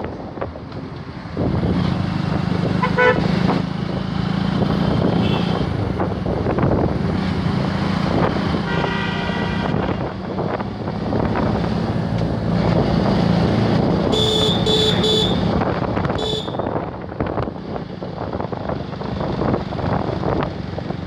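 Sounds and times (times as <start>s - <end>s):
road traffic rumble: 0.0s - 21.0s
vehicle horn beeping: 2.8s - 3.2s, 5.2s - 5.6s, 8.7s - 10.0s, 14.1s - 15.5s, 16.2s - 16.8s.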